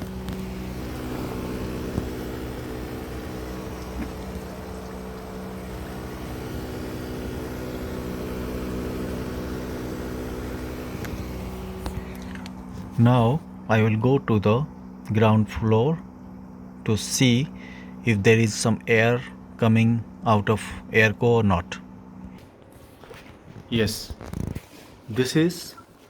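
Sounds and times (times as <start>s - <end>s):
air conditioner compressor and fan hum: 0.0s - 26.0s.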